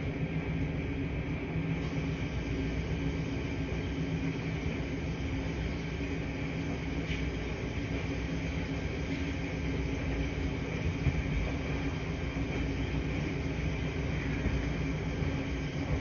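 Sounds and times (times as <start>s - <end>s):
laundry machines humming: 0.0s - 16.0s.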